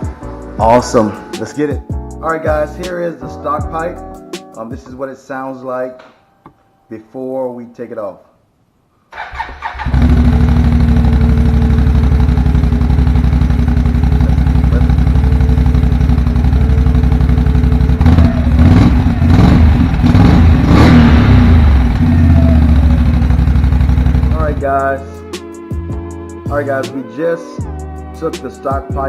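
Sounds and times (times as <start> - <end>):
atv engine idling and revving: 9.7 - 24.8.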